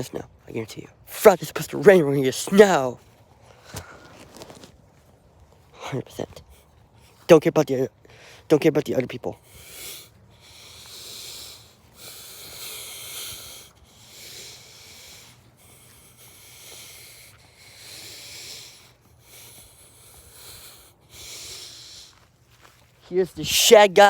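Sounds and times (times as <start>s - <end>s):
person breathing: 3.4s - 4.5s, 8.0s - 8.5s, 9.4s - 22.7s.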